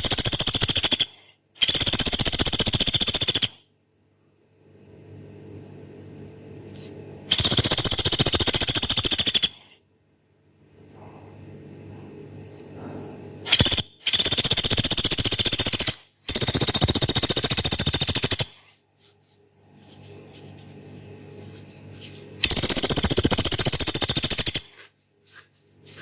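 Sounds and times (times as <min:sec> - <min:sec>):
woodpecker harsh rattling calls: 0:00.0 - 0:03.6, 0:07.3 - 0:09.7, 0:13.5 - 0:18.7, 0:22.4 - 0:24.8.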